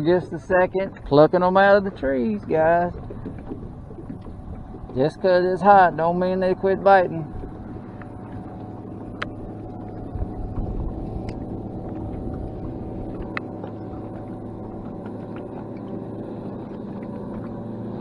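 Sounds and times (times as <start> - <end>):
boat motor hum: 0.0 - 18.0
light clicks: 9.0 - 9.4.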